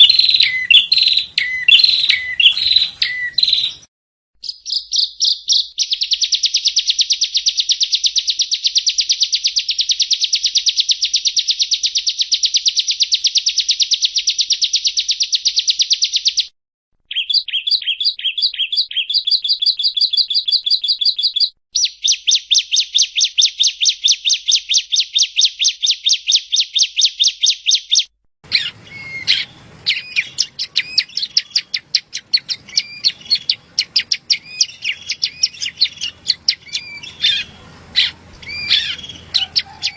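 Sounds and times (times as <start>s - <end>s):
bird buzzy trills: 0.0s - 16.4s, 28.5s - 39.9s.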